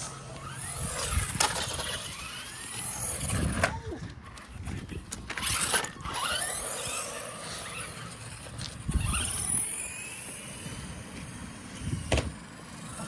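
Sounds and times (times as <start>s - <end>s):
electric motor whining: 0.0s - 3.8s, 5.3s - 13.0s
tyre noise on concrete: 0.0s - 13.0s.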